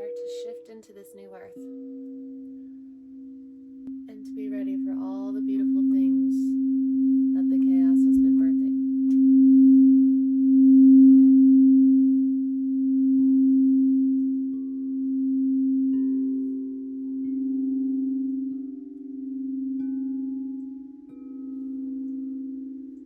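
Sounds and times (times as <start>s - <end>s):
higher singing bowl tones: 0.0s - 23.0s
low singing bowl tone: 0.0s - 23.0s.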